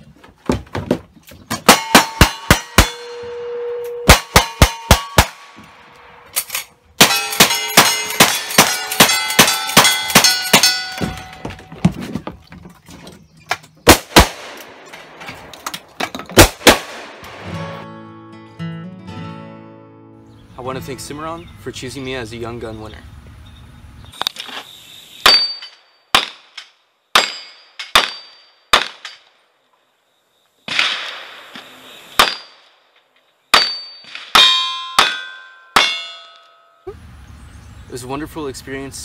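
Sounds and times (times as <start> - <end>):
steel targets clanging: 1.6 - 5.5, 6.2 - 11.7, 25.2 - 29.3, 33.5 - 36.9.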